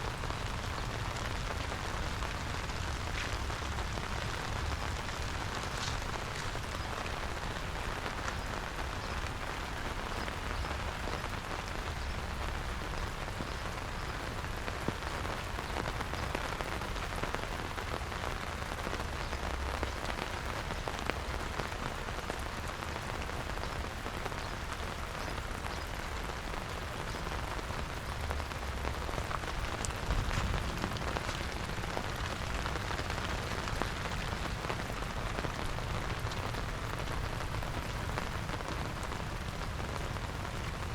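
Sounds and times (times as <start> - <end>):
steady rain falling: 0.0 - 40.9
low rumble: 29.6 - 38.4.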